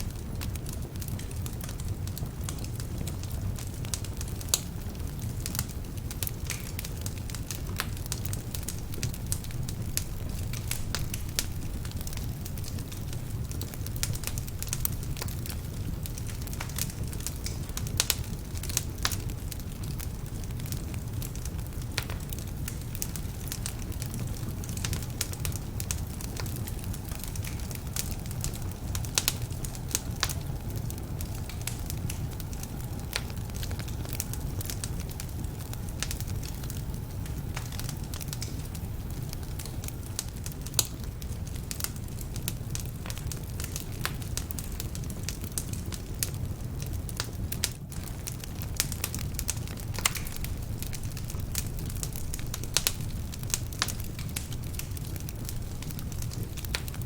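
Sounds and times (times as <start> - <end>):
fire crackling and popping: 0.0 - 57.0.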